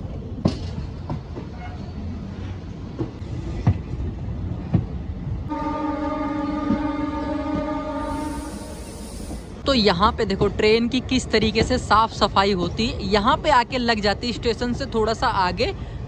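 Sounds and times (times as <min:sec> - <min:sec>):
train horn blast: 0:05.5 - 0:09.2
train wheels knocking on rail joints: 0:06.5 - 0:07.8.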